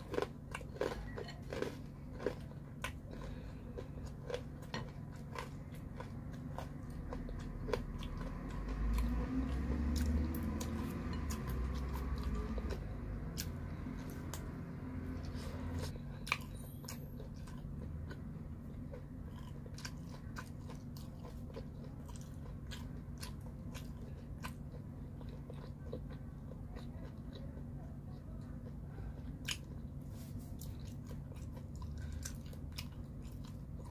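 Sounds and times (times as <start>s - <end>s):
biting and chewing with mouth clicks: 0.0s - 33.9s
steady low hum: 0.0s - 33.9s.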